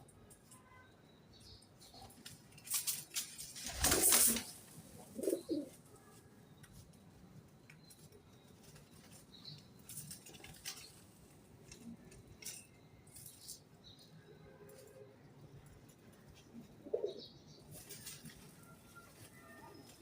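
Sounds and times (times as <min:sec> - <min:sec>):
faint high bird chirps: 0:00.1 - 0:02.2, 0:16.9 - 0:20.0
pigeon cooing: 0:05.0 - 0:05.8, 0:16.6 - 0:17.3.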